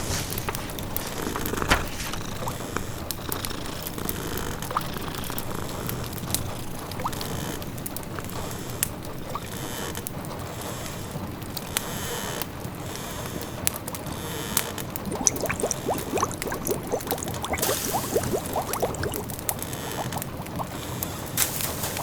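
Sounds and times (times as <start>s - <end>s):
pot bubbling at a simmer: 8.9s - 9.6s, 15.0s - 22.0s
wood fire crackling: 14.9s - 22.0s
rain patter: 15.0s - 22.0s.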